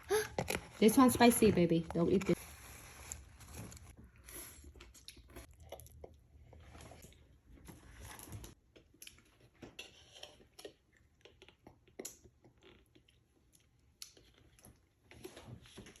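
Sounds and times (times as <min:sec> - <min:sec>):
chewing with small crunches: 0:03.8 - 0:16.0.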